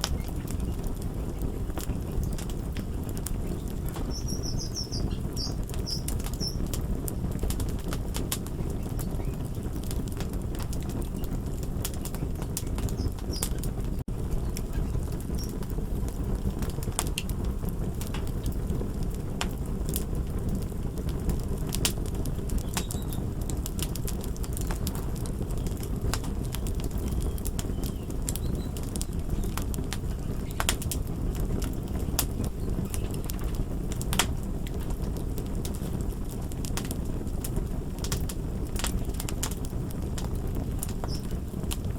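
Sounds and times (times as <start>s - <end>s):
fire crackling and popping: 0.0s - 41.9s.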